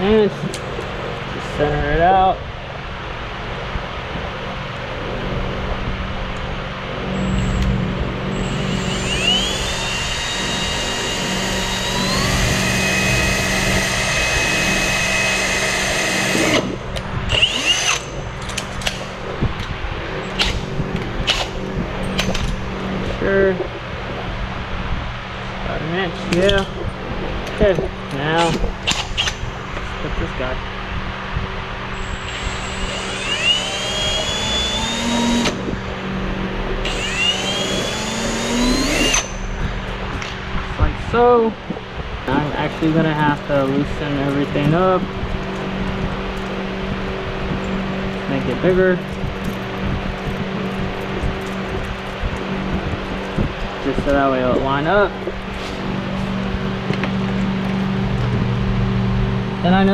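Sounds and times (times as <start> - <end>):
steady low hum: 0.0 - 59.9
cordless drill whining: 8.3 - 18.2, 32.0 - 35.7, 36.8 - 39.5.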